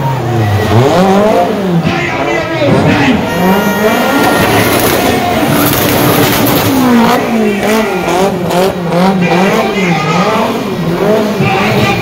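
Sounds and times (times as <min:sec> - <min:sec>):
car engine revving: 0:00.0 - 0:12.0
tyre squeal: 0:02.9 - 0:06.8.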